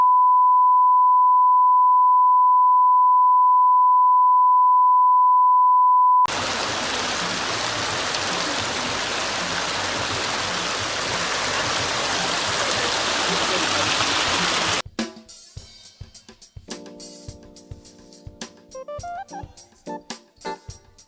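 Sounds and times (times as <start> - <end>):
flowing water: 6.3 - 14.8.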